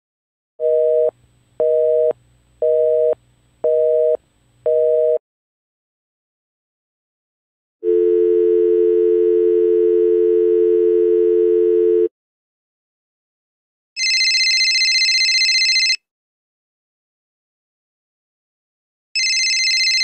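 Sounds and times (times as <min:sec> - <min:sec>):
telephone dial tone: 0:00.6 - 0:05.2, 0:07.8 - 0:12.1, 0:15.5 - 0:16.0.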